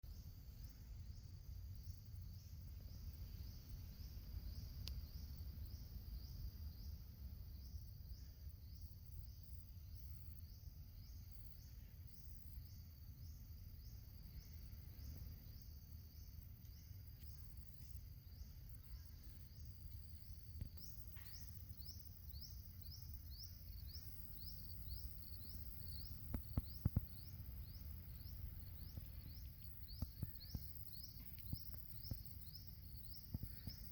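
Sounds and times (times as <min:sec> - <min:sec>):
steady low rumble: 0:21.7 - 0:33.9.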